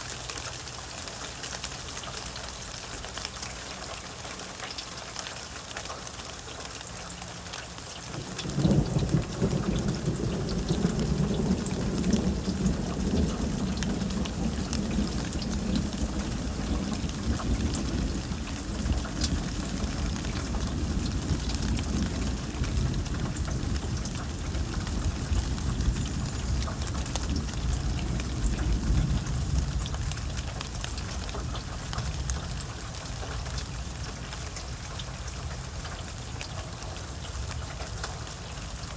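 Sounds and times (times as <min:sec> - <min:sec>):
steady rain with ticking drops: 0:00.0 - 0:38.9
thunder rumbling: 0:08.2 - 0:34.1.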